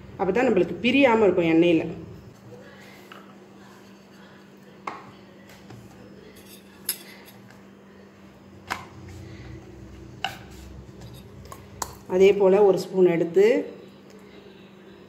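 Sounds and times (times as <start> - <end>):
faint steady hum: 0.0 - 15.0
spoon clinking against a dish: 6.3 - 7.4.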